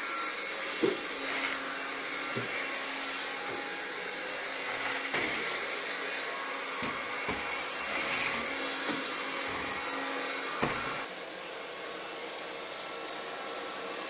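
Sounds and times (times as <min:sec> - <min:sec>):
vacuum cleaner whirring: 0:00.0 - 0:14.0.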